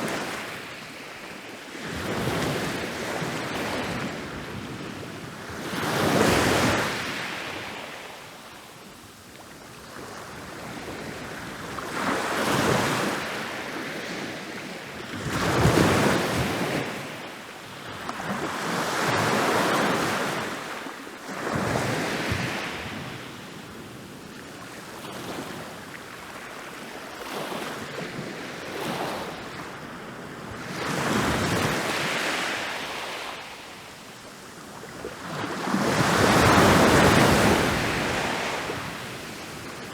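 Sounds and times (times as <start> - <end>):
ocean waves breaking on beach: 24.5 - 39.9.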